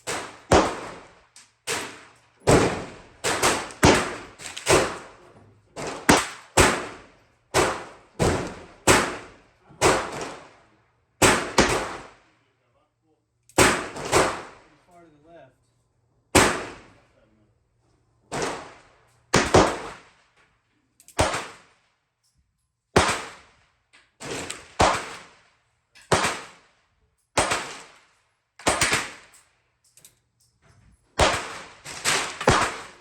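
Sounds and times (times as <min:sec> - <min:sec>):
handgun shots: 0:01.7 - 0:05.0, 0:11.2 - 0:12.1, 0:28.6 - 0:29.3, 0:31.2 - 0:33.0.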